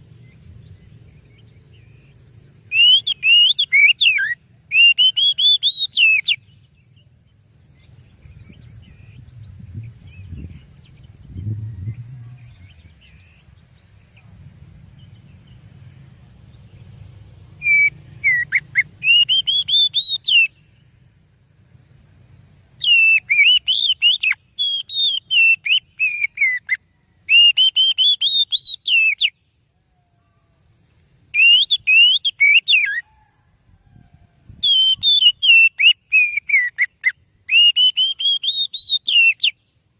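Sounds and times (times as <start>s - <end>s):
bird singing whistled notes: 0.0s - 39.9s
faint low rumble: 6.4s - 19.0s.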